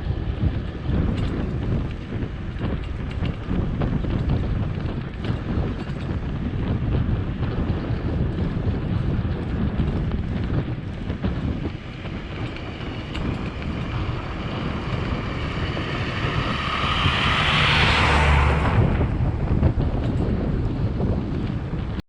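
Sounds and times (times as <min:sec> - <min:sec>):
wind buffeting microphone: 0:00.0 - 0:22.0
vehicle passing close: 0:10.6 - 0:21.9.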